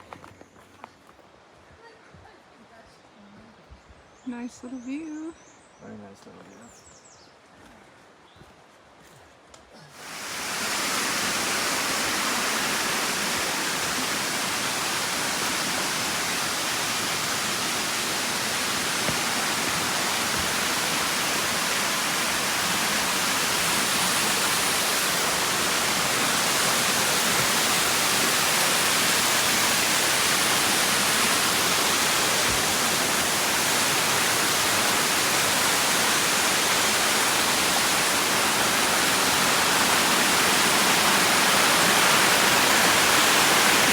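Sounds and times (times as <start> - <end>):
waterfall roaring: 10.0 - 43.9.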